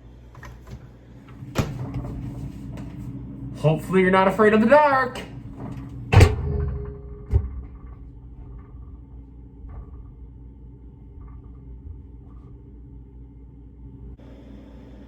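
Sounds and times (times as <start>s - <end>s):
microwave oven humming: 0.0s - 15.0s
thud: 6.1s - 9.0s.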